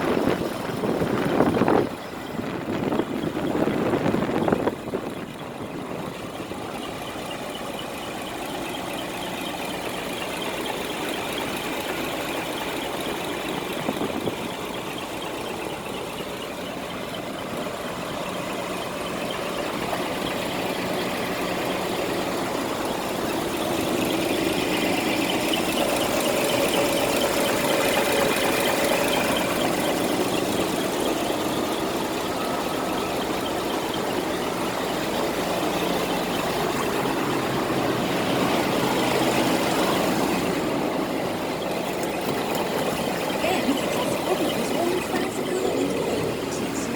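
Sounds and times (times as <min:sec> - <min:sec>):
diesel truck engine idling: 0:00.0 - 0:46.9.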